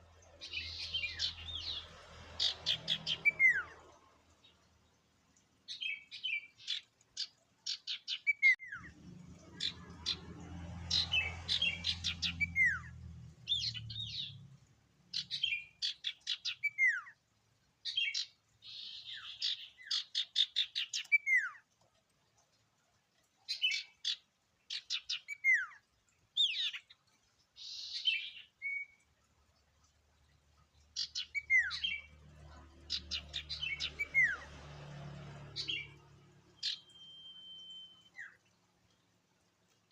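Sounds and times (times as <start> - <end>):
bird chirps and whistles: 36.6 - 38.4.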